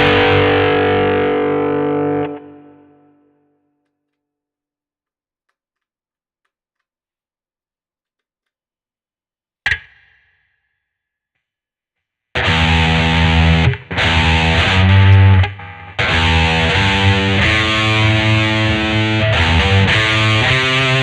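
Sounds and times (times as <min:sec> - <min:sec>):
guitar pick noise: 0:00.0 - 0:03.4, 0:12.4 - 0:21.0
distorted electric guitar chords: 0:00.0 - 0:03.6, 0:12.4 - 0:21.0.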